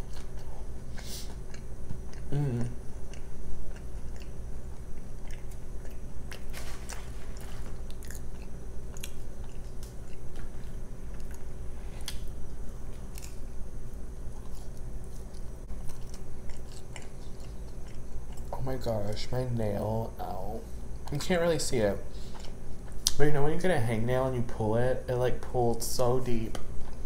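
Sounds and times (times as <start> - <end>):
person chewing food: 0.0 - 18.6, 22.2 - 23.2
steady low hum: 0.0 - 27.0.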